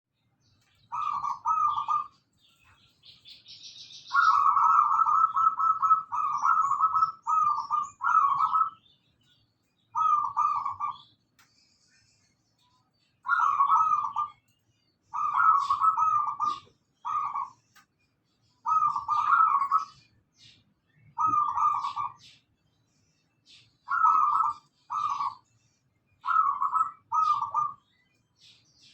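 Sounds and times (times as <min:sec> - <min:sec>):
small birds chirping: 0:00.1 - 0:28.9
dove cooing: 0:00.9 - 0:02.2, 0:04.1 - 0:08.8, 0:10.0 - 0:11.1, 0:13.3 - 0:14.4, 0:15.1 - 0:17.6, 0:18.6 - 0:20.0, 0:21.1 - 0:22.3, 0:23.9 - 0:25.5, 0:26.2 - 0:27.8.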